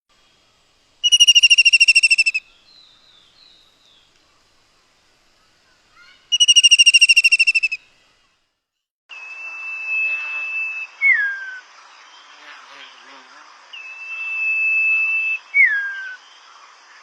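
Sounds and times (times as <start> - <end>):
high bird trill: 1.0 - 3.6, 6.0 - 7.9
soft bird chirps: 1.0 - 8.3.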